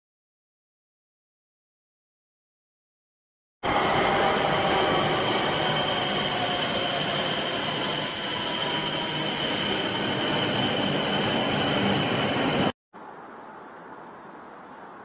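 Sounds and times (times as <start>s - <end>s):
high-speed train rumble and rush: 3.6s - 12.8s.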